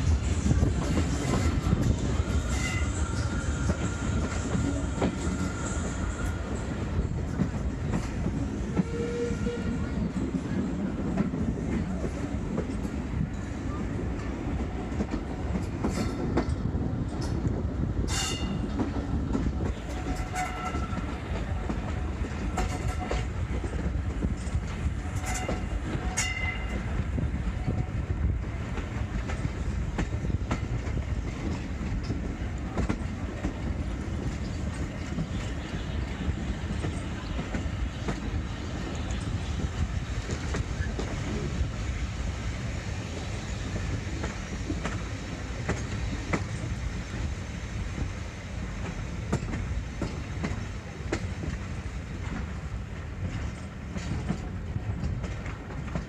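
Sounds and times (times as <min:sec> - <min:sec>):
train rumbling on rails: 0:00.0 - 0:56.0
wheel squeals: 0:02.2 - 0:06.4.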